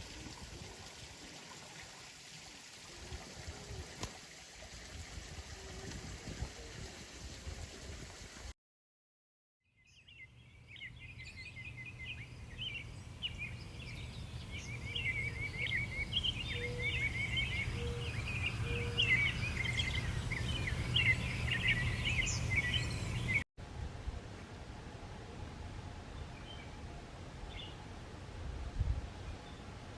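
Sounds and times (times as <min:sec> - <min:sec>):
small birds chirping and twittering: 0:09.9 - 0:23.4.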